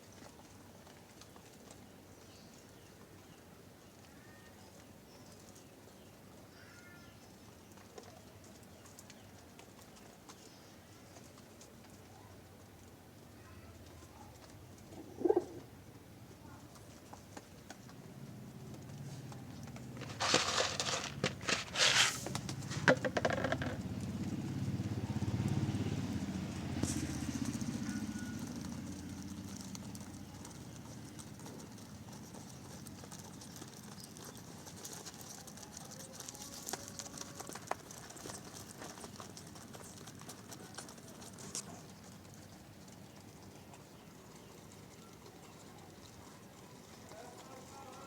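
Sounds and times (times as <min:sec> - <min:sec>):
pigeons cooing: 0:14.3 - 0:15.9
loud rustling bursts: 0:19.8 - 0:23.1.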